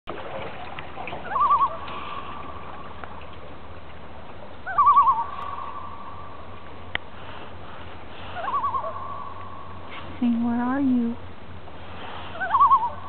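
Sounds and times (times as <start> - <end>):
loon tremolo call: 4.7 - 6.0, 12.4 - 13.0.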